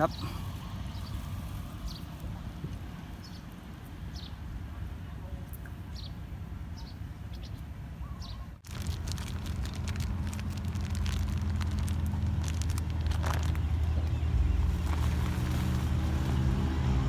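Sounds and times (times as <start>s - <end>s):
engine running with low hum: 0.0s - 8.0s, 8.6s - 17.0s
birds chirping faintly: 0.0s - 17.0s
clicks and crackles: 8.6s - 13.7s.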